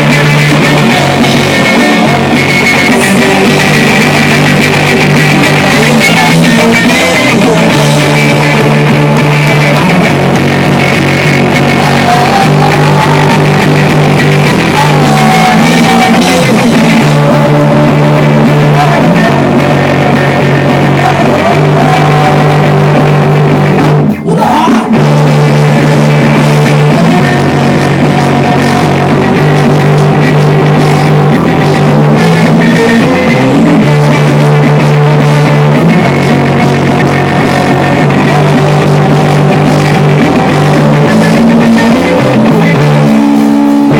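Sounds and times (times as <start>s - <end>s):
loud rock music: 0.0s - 43.9s.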